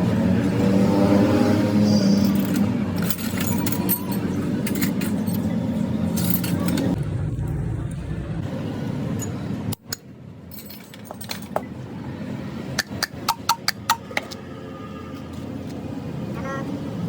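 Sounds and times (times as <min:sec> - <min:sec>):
metal pieces clinking: 0:02.1 - 0:07.0, 0:10.5 - 0:11.6
low rumble: 0:07.0 - 0:09.0.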